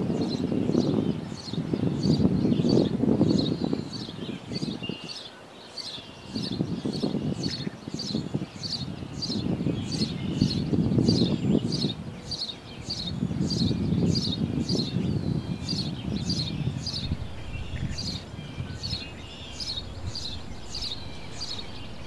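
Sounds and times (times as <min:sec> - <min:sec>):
small bird chirping: 0:05.8 - 0:22.0
low rumble: 0:15.7 - 0:22.0.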